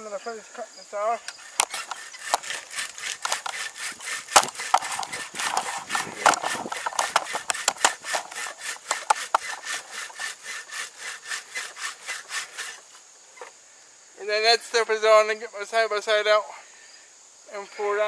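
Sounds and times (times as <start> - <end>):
hand saw cutting wood: 1.3 - 13.0.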